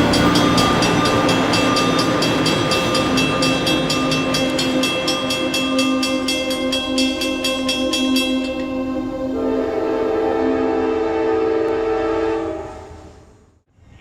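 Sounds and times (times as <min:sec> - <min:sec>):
steady held tones: 0:00.0 - 0:11.2
train moving on rails: 0:00.0 - 0:13.4.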